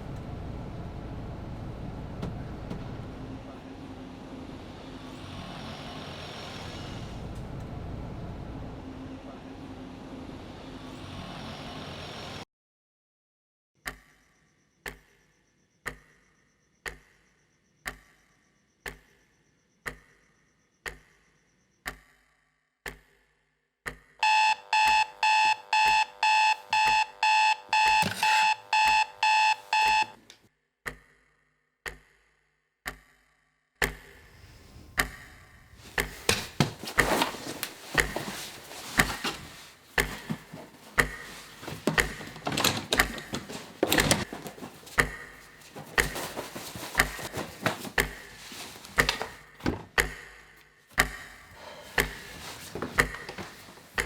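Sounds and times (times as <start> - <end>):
alarm clock beeping rapidly: 24.2 - 30.2
irregular clicks and knocks: 36.2 - 50.2.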